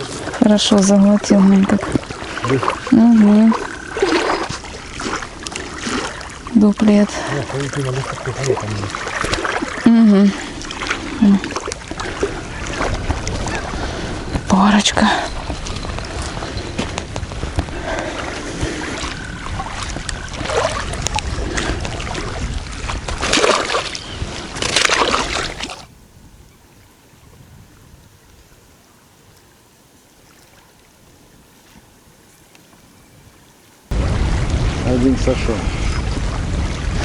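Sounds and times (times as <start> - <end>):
water lapping at shore: 0.0 - 37.0
wind buffeting microphone: 0.0 - 37.0
faint steady outdoor hiss: 24.8 - 35.6.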